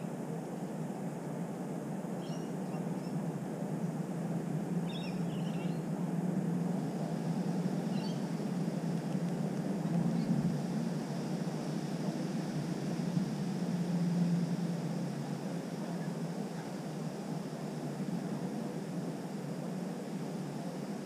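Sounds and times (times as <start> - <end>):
low background rumble: 0.0 - 21.0
faint bird chirps: 2.2 - 3.2, 4.8 - 5.9, 7.8 - 8.3.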